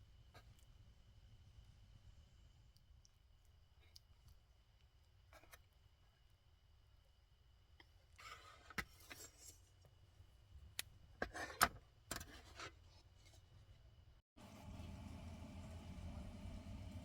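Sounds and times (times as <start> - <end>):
handling rubbing and rustling: 8.1 - 10.1.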